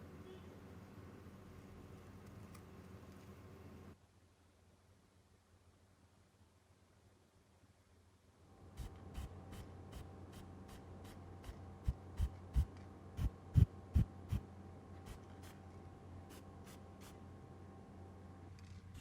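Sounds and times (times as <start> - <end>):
steady low hum: 8.6 - 19.0.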